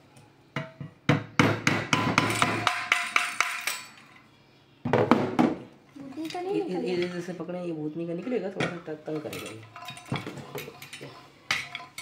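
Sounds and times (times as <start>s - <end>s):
hammer knocking on metal: 0.6s - 3.4s.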